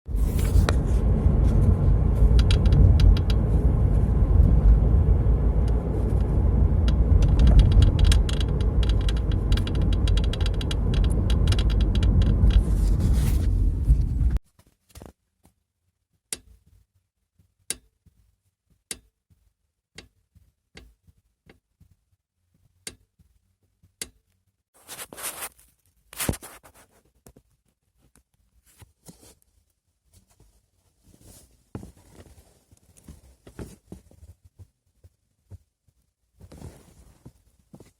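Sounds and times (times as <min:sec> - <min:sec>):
car road rumble: 0:00.1 - 0:14.4
car seat rattling and clicking: 0:02.2 - 0:04.5, 0:06.9 - 0:14.3.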